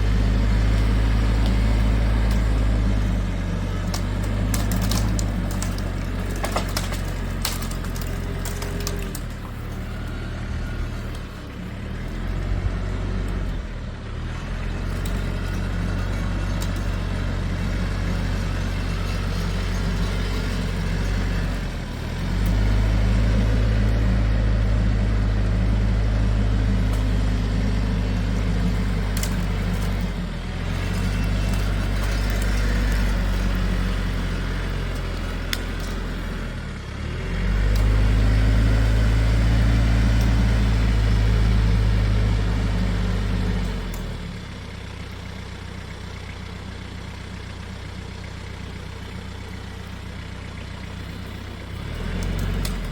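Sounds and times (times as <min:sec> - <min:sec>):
large vehicle engine running: 0:00.0 - 0:52.9.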